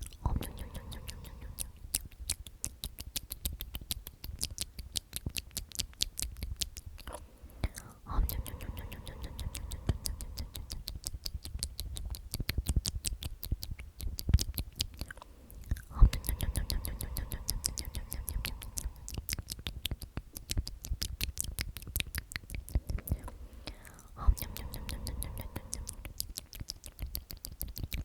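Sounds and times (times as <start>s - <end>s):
person whispering: 0.0s - 1.9s, 7.1s - 11.0s, 15.0s - 19.6s, 22.6s - 26.5s
wet mouth clicks and lip smacks: 0.0s - 28.0s.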